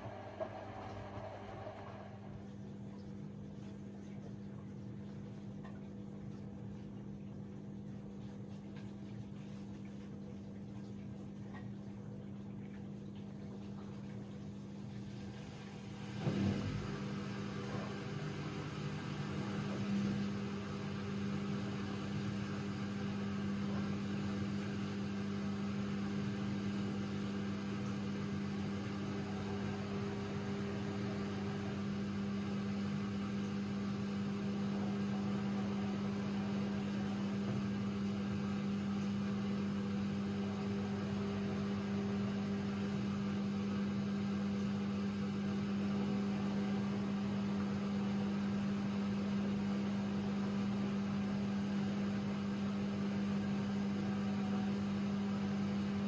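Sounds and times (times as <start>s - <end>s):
washing machine humming: 0.0s - 56.0s.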